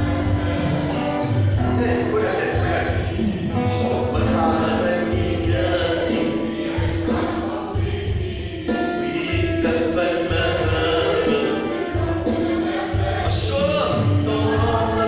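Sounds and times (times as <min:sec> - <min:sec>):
group singing a hymn: 0:00.0 - 0:15.0
instrumental accompaniment: 0:00.0 - 0:15.0.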